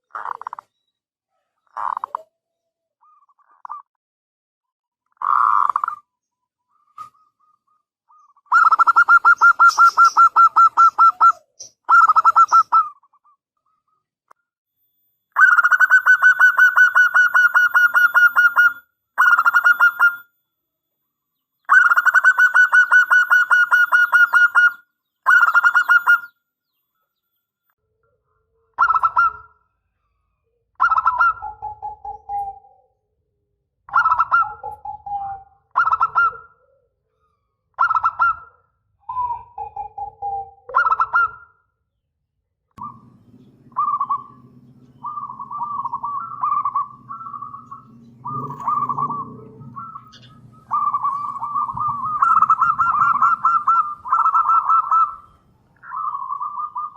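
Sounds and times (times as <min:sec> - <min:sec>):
dove cooing: 0:01.7 - 0:02.3, 0:07.0 - 0:13.3, 0:15.4 - 0:20.2, 0:21.7 - 0:26.3, 0:28.3 - 0:29.6, 0:30.8 - 0:32.9, 0:33.9 - 0:41.4, 0:42.8 - 0:56.9.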